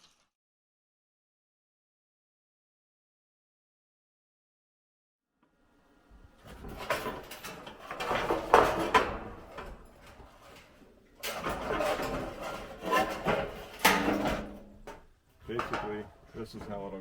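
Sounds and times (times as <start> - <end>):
building materials scraping: 6.4 - 14.4.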